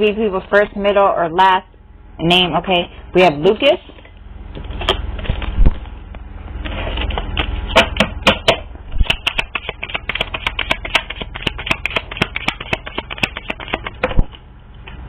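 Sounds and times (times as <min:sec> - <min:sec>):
cards being shuffled: 0:09.0 - 0:14.0.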